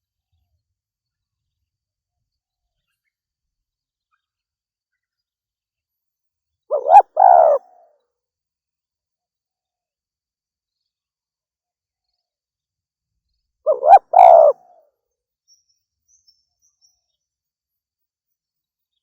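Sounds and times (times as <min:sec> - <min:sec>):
dove cooing: 0:06.7 - 0:07.7, 0:13.7 - 0:14.6.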